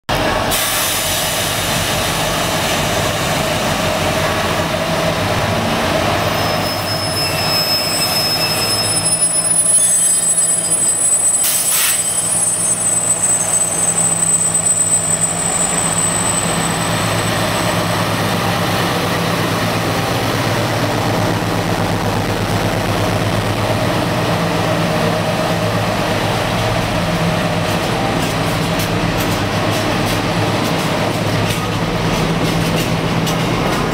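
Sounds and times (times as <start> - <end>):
diesel locomotive engine drone: 0.1 - 33.9
high-pitched wheel squeals: 6.2 - 18.0.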